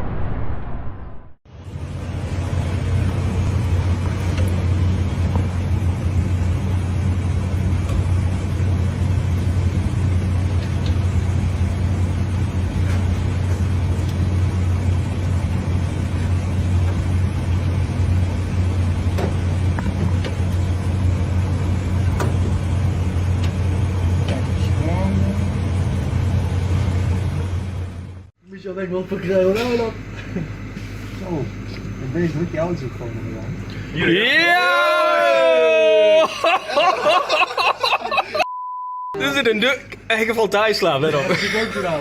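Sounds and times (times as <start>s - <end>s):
road noise: 0.0s - 28.3s
vehicle engine humming: 1.6s - 28.3s.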